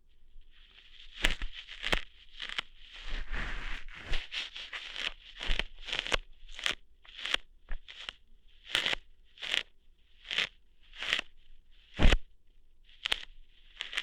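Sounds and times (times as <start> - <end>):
crackling hair plucks: 1.0 - 9.6, 13.0 - 14.0.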